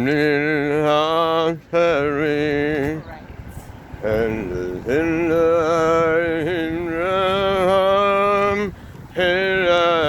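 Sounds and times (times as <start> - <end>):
man singing long held notes: 4.0 - 10.0.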